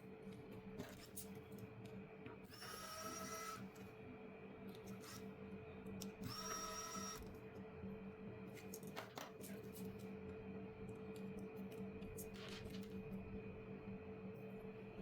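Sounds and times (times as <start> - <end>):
small motor whirring: 2.5 - 3.6, 6.2 - 7.3.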